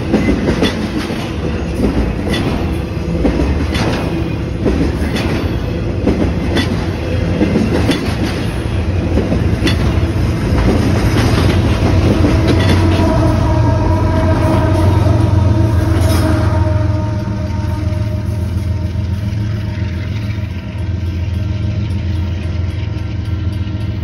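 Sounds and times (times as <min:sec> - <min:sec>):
wheels clicking over rail joints: 0:00.0 - 0:13.4, 0:19.0 - 0:24.0
diesel locomotive engines humming: 0:00.0 - 0:24.0.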